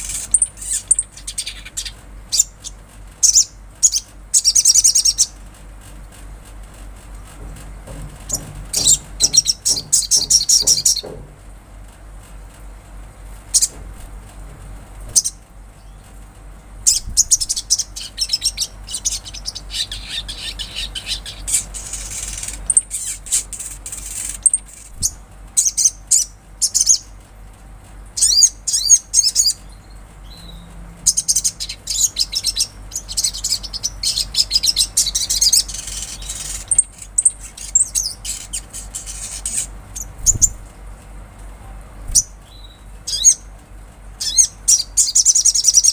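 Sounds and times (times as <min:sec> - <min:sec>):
bird chirping and trilling: 0:00.0 - 0:05.4, 0:08.2 - 0:11.1, 0:13.5 - 0:13.7, 0:15.2 - 0:16.1, 0:16.8 - 0:27.1, 0:28.2 - 0:40.6, 0:42.1 - 0:43.5, 0:44.2 - 0:45.9.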